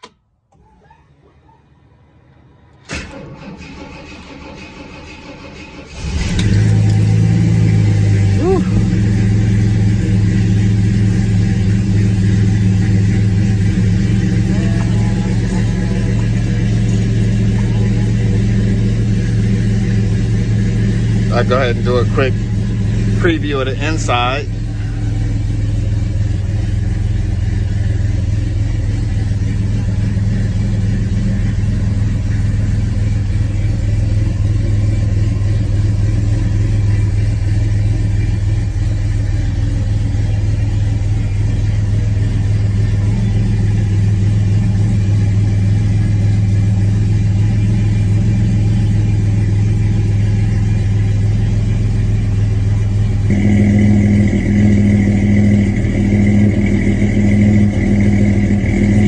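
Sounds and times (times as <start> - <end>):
car engine running: 4.4 - 59.0
higher-pitched hum: 52.7 - 59.0.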